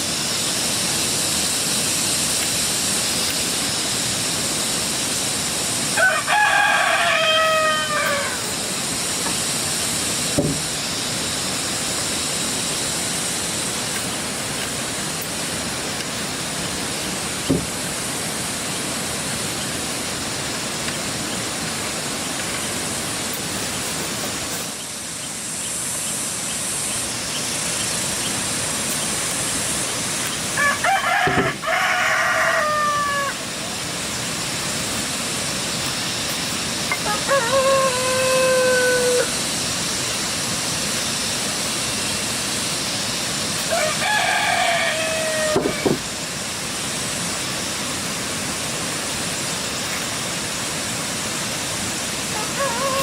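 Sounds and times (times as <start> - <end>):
steady high hiss: 0.0 - 53.0
rooster crowing: 5.9 - 8.7, 30.5 - 33.5, 36.9 - 39.4, 43.7 - 46.0, 52.3 - 53.0.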